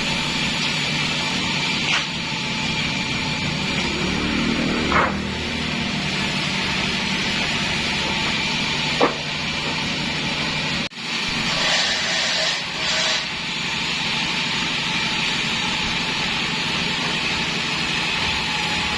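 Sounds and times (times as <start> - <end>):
saw blade cutting log: 0.1 - 10.4, 11.3 - 15.2
saw squeak: 11.5 - 13.4.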